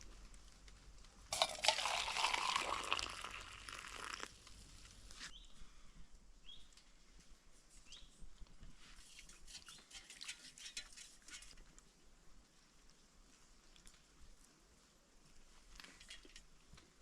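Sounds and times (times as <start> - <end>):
crunching crinkling noise: 0.0 - 5.8, 10.7 - 17.0.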